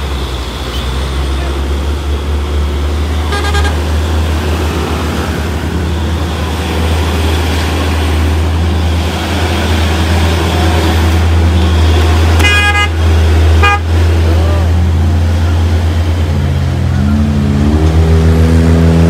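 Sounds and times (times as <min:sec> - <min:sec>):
truck diesel engine rumbling: 0:00.0 - 0:19.0
truck horn: 0:03.2 - 0:04.0, 0:11.4 - 0:14.2.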